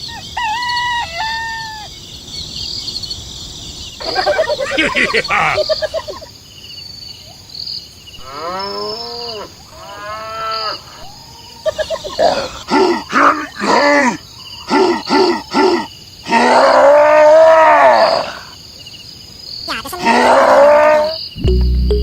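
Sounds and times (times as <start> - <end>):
animal calls: 4.0 - 6.3, 8.2 - 18.6.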